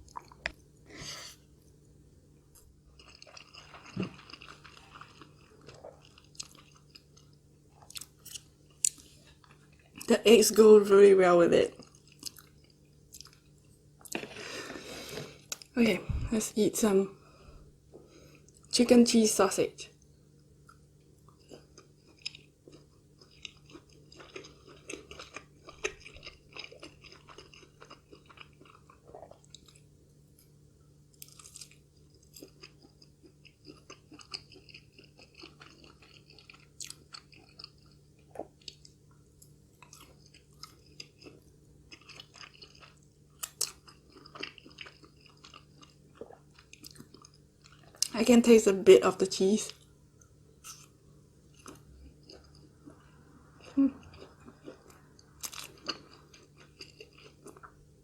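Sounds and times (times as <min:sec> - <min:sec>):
person chewing: 0:00.0 - 0:01.4, 0:02.6 - 0:10.1, 0:11.8 - 0:15.7, 0:20.6 - 0:48.1, 0:49.7 - 0:58.0.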